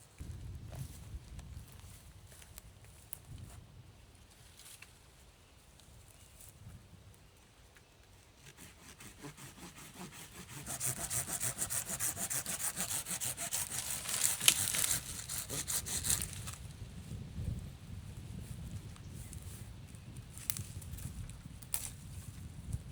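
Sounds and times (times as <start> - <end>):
hand saw cutting wood: 8.4 - 16.6
wood cracking: 13.3 - 16.6.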